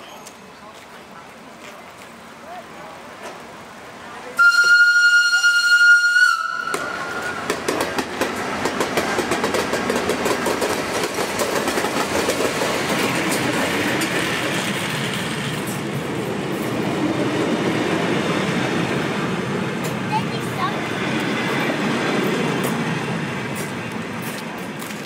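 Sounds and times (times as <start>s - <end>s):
train rumbling on rails: 0.0s - 25.0s
train horn: 4.4s - 7.4s
wheels clicking over rail joints: 6.6s - 25.0s.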